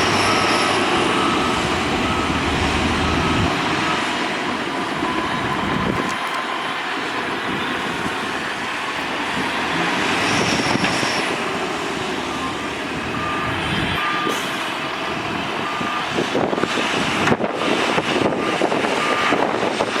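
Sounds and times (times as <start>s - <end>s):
heavy machinery running: 0.0s - 20.0s
reversing alarm beeping: 0.0s - 20.0s.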